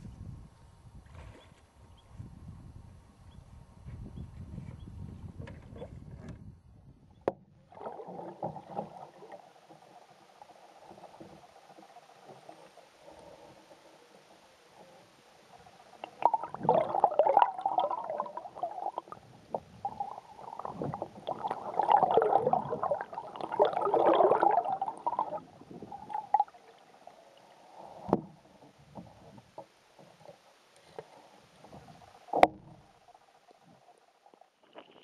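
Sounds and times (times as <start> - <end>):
water splashing around paddle: 7.3 - 33.9.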